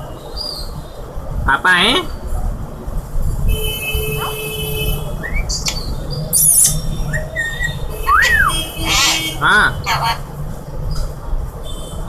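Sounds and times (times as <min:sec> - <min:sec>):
parakeet chirping: 0:05.0 - 0:10.3
parakeet squawk: 0:06.4 - 0:10.3.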